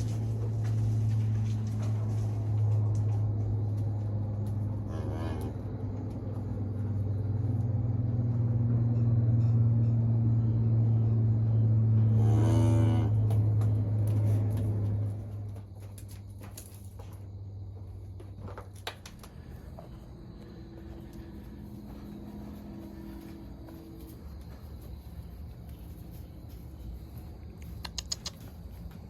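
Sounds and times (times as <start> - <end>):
vehicle engine hum: 0.0 - 29.0
cow mooing: 4.8 - 5.7, 12.0 - 13.4.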